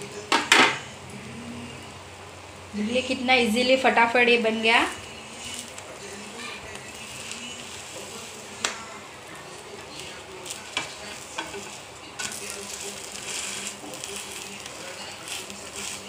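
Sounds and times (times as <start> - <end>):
flatbread sizzling in oil: 2.8 - 16.0
spatula scraping and tapping pan: 10.7 - 16.0.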